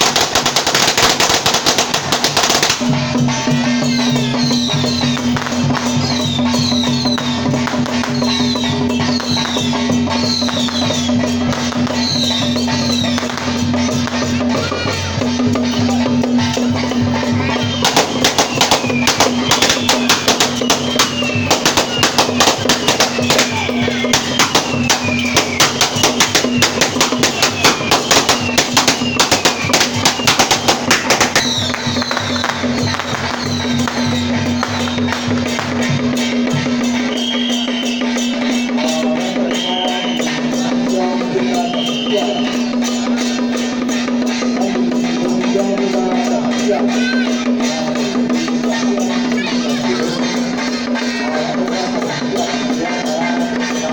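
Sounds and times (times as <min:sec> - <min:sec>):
firecrackers cracking: 0:00.0 - 0:37.4
drumming and percussion: 0:00.0 - 0:53.9.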